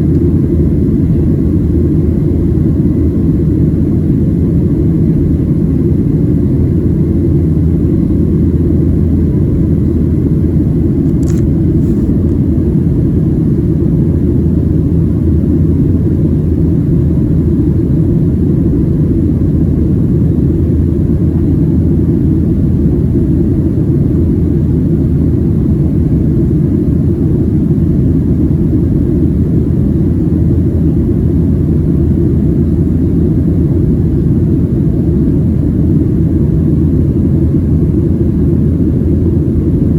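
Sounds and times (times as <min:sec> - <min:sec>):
airplane cabin engine rumble: 0:00.0 - 0:39.9
brief click: 0:11.0 - 0:11.5.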